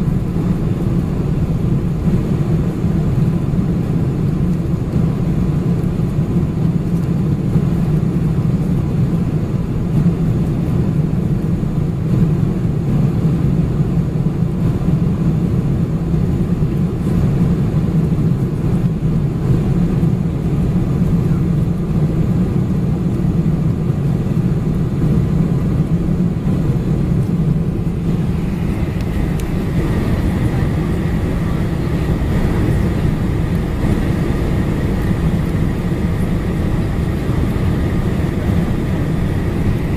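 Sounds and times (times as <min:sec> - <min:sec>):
airliner cabin engine rumble: 0:00.0 - 0:39.9
faint high whine: 0:27.2 - 0:39.9.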